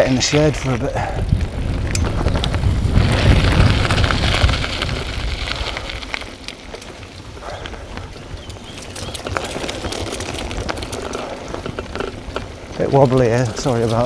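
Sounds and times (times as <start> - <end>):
tyres rolling over rough path: 0.0 - 14.0
wind buffeting microphone: 0.0 - 14.0
deep rumble: 0.9 - 6.3.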